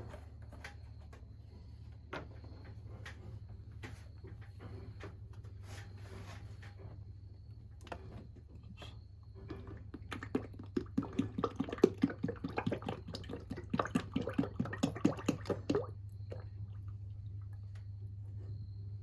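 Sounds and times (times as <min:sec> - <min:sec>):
oil glugging from bottle: 0:09.4 - 0:17.6.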